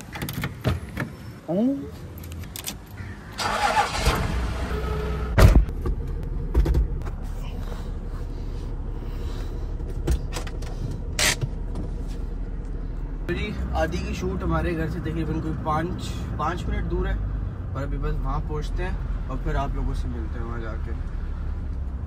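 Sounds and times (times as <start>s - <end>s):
car engine starting and idling: 2.0s - 20.0s
loud thump: 5.3s - 6.9s.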